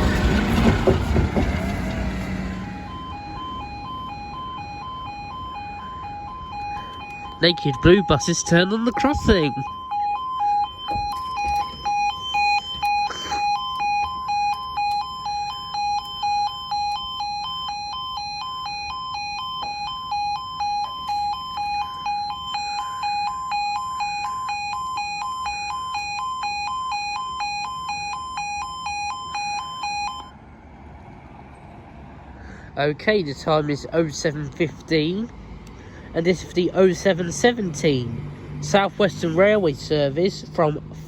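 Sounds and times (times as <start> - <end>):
level crossing alarm two tones: 2.3 - 30.3.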